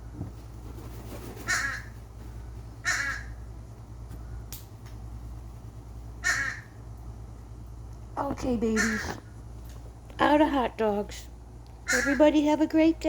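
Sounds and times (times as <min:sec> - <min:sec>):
steady low hum: 0:00.0 - 0:13.0
gull calling harshly: 0:02.8 - 0:03.4, 0:06.2 - 0:06.7, 0:08.6 - 0:09.2, 0:11.8 - 0:12.3.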